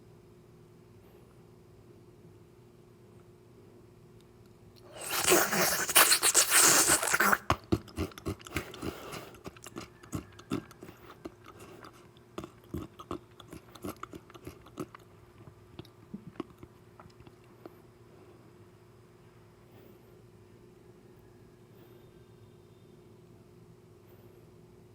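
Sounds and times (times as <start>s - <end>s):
crunching bite: 4.8s - 15.0s
wet chewing: 4.8s - 17.8s.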